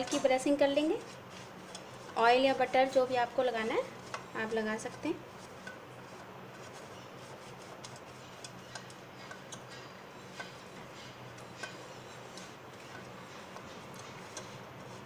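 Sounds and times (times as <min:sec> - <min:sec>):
brush ticking on metal tin: 0:04.0 - 0:15.0.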